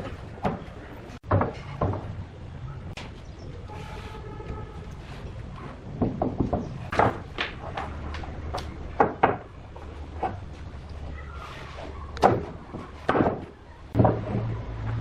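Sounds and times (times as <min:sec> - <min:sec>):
wood knocking on wood: 0:00.4 - 0:02.1, 0:06.0 - 0:09.5.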